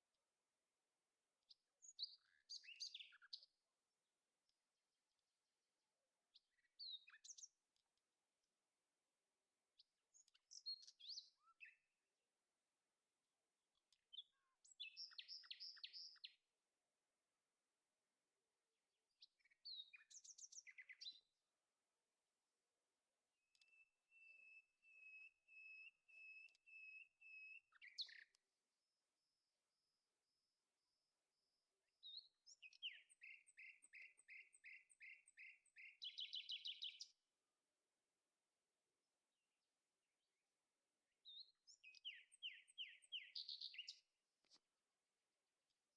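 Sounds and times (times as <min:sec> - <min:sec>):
songbird singing faintly: 0:01.4 - 0:03.6, 0:06.3 - 0:07.6, 0:09.8 - 0:11.9, 0:13.8 - 0:16.4, 0:19.2 - 0:21.4, 0:23.4 - 0:28.4, 0:30.3 - 0:37.2, 0:41.2 - 0:44.6
small bird chirping: 0:01.5 - 0:03.6, 0:06.3 - 0:07.6, 0:09.8 - 0:11.8, 0:13.8 - 0:16.4, 0:19.2 - 0:21.3, 0:23.5 - 0:28.4, 0:32.0 - 0:37.2, 0:41.2 - 0:44.6.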